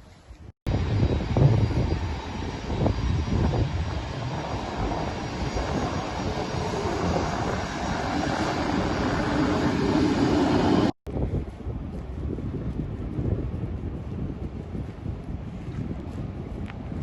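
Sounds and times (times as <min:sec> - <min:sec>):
wind noise on microphone: 0:00.0 - 0:17.0
airplane engines droning: 0:00.3 - 0:17.0.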